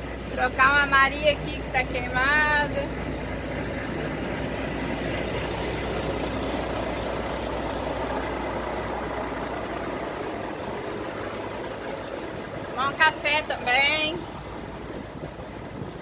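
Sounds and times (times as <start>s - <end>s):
heavy diesel engine drone: 0.0s - 16.0s
short hiss: 5.4s - 6.2s.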